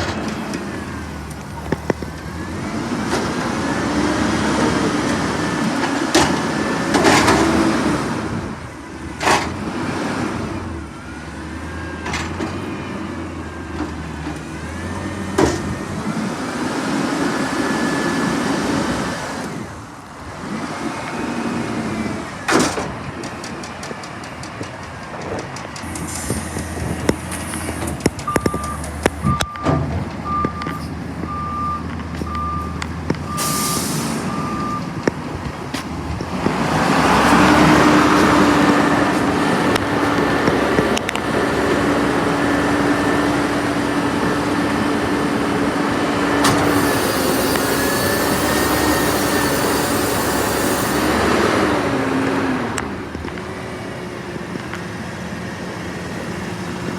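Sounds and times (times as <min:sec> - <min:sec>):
garbage truck engine humming: 0:00.0 - 0:56.9
reversing beeper: 0:28.3 - 0:34.9, 0:46.5 - 0:52.0.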